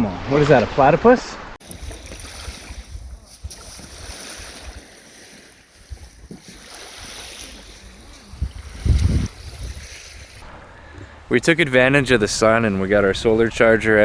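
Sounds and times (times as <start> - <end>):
wind buffeting microphone: 1.6 - 4.8, 5.7 - 14.0
waves washing onto beach: 1.6 - 11.3.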